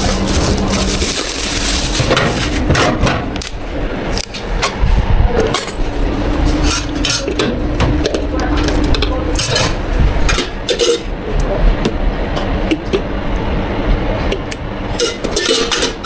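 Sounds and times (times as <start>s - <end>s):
steady low hum: 0.0s - 16.0s
cups and utensils clinking: 6.6s - 11.1s, 15.0s - 16.0s.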